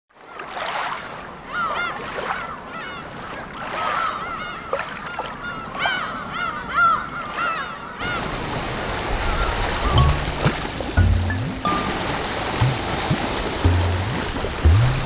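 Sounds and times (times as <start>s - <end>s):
surf breaking on rocks: 8.0s - 15.0s.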